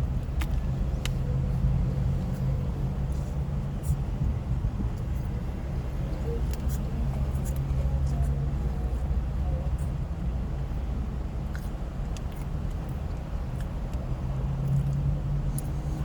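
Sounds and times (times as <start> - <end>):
steady low rumble: 0.0 - 16.0
soft chewing clicks: 11.5 - 14.0.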